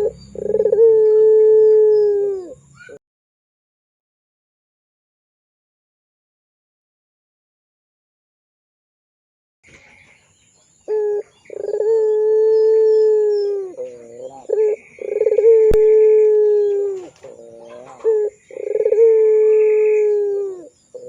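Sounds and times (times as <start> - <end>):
dove cooing: 0.0 - 3.0, 10.9 - 21.0.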